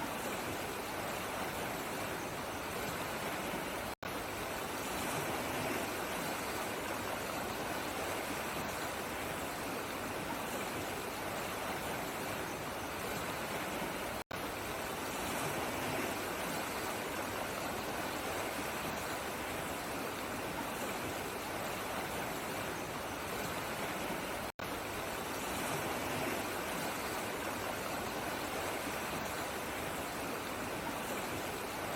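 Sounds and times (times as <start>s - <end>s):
stream water flowing: 0.0s - 31.9s.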